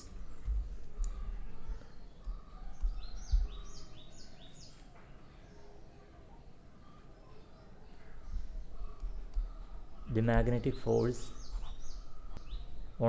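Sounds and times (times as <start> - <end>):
small bird chirping: 0.0 - 4.9, 7.3 - 13.0
dull low thumps: 2.8 - 3.8.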